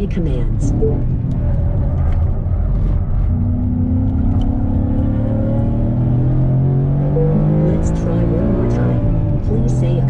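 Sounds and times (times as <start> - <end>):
car engine accelerating: 0.0 - 10.0.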